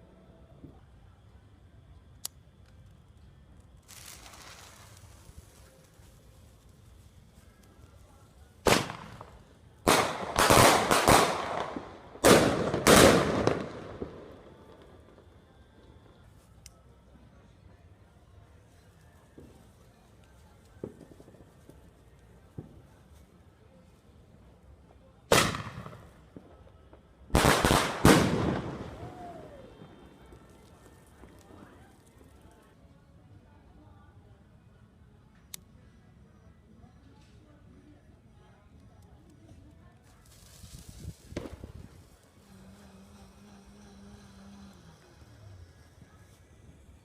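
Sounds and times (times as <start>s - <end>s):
fireworks bangs: 8.6s - 15.2s, 25.3s - 32.2s, 40.3s - 44.3s.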